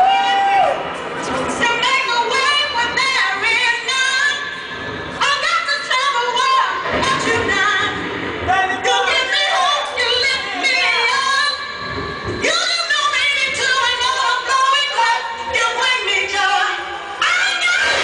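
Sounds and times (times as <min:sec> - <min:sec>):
woman singing: 0:01.6 - 0:04.5, 0:05.2 - 0:08.0, 0:08.7 - 0:11.8, 0:12.4 - 0:18.0.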